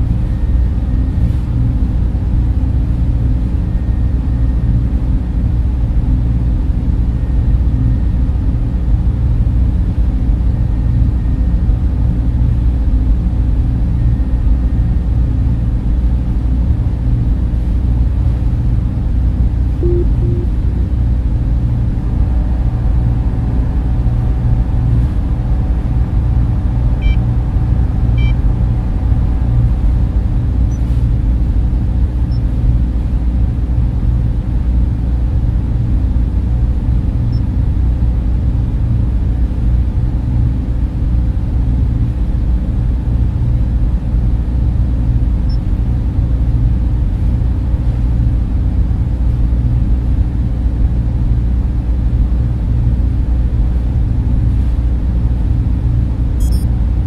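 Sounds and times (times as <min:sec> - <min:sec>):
constant hum: 0:00.0 - 0:57.0
cooling fans whirring: 0:00.0 - 0:57.0
low rumble: 0:16.7 - 0:33.8
faint high blips: 0:19.8 - 0:20.7, 0:56.4 - 0:56.7.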